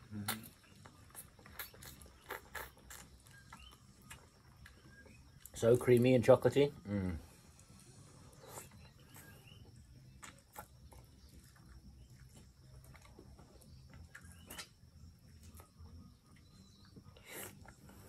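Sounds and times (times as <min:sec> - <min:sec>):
wet mouth clicks and smacks: 0:00.2 - 0:04.8, 0:13.9 - 0:14.8.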